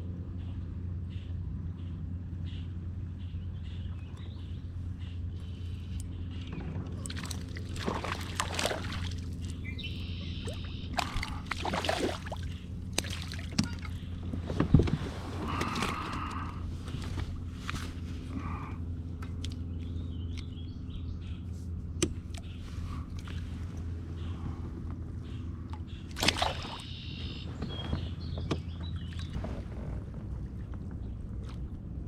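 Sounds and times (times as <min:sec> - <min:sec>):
steady low hum: 0:00.0 - 0:32.0
water sloshing around kayak hull: 0:06.6 - 0:20.6, 0:25.2 - 0:32.0.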